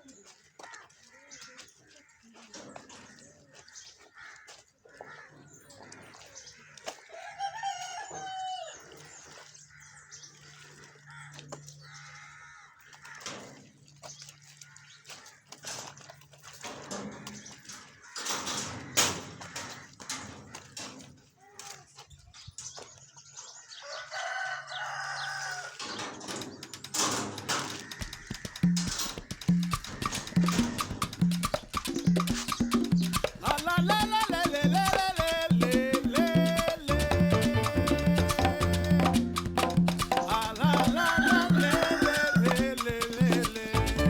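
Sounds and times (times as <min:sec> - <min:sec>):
rooster crowing: 0:07.1 - 0:08.9, 0:23.8 - 0:25.8, 0:37.7 - 0:43.3
background music with a beat: 0:28.2 - 0:44.0.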